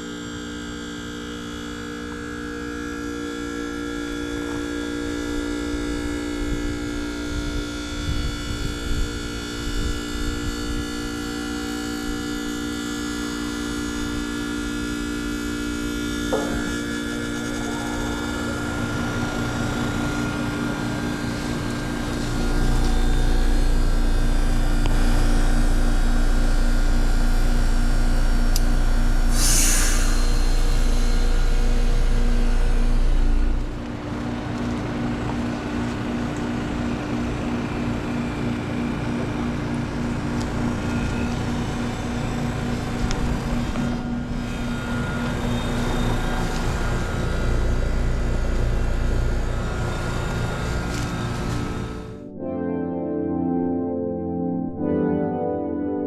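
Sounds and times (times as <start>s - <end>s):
heat pump compressor humming: 0.0s - 52.2s
pulsing low rumble: 15.4s - 34.4s, 39.9s - 56.0s
short rush of hiss: 29.3s - 31.4s.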